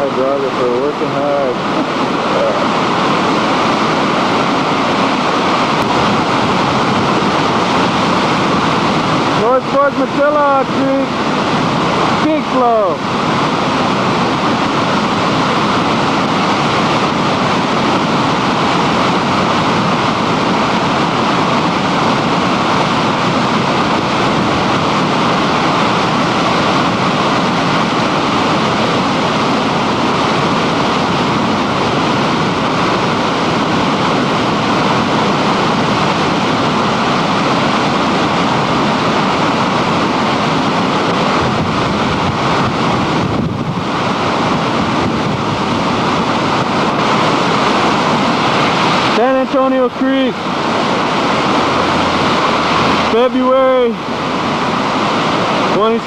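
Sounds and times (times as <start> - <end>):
floodwater rushing: 0.0 - 56.0.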